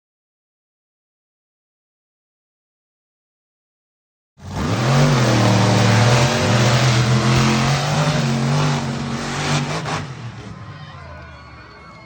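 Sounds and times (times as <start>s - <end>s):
monster truck engine revving: 4.4s - 10.7s.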